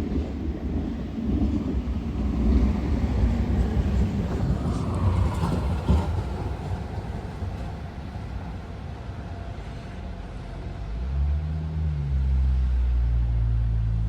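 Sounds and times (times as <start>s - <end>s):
blizzard wind gusting: 0.0s - 9.5s.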